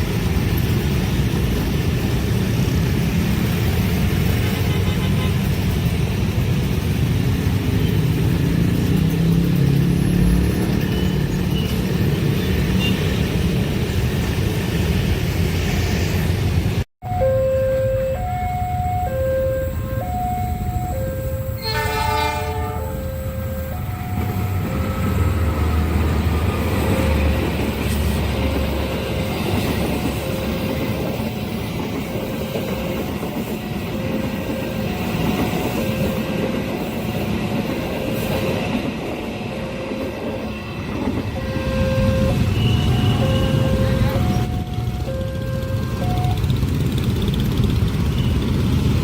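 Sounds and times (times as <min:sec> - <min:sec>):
train wheels rumbling on rails: 0:00.0 - 0:16.9, 0:21.6 - 0:49.0
level-crossing alarm chiming: 0:17.0 - 0:21.8, 0:22.8 - 0:31.3, 0:39.5 - 0:46.9
train horn blast: 0:21.4 - 0:24.6, 0:41.3 - 0:44.6.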